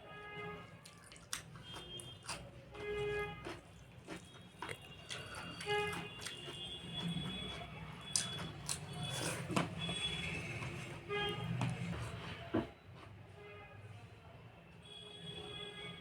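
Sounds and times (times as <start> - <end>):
chewing and mouth noises: 0.7 - 12.2.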